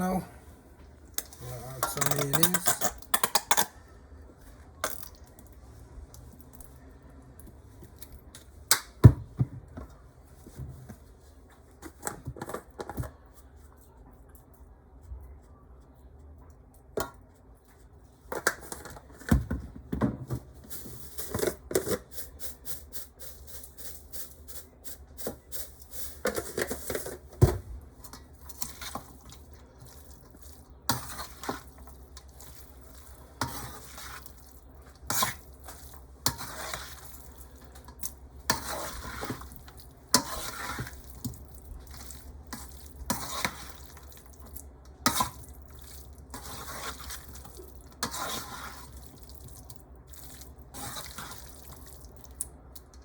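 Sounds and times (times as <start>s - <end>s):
spoon knocking and scraping bowl: 35.1s - 37.1s, 38.0s - 39.6s.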